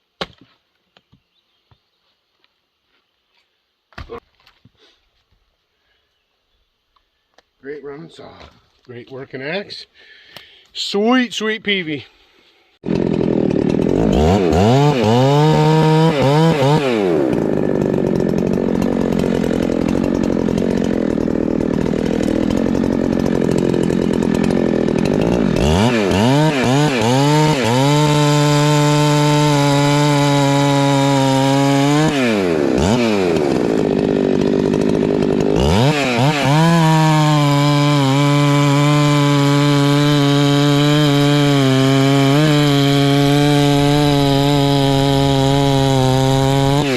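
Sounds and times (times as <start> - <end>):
chainsaw cutting wood: 12.8 - 46.9.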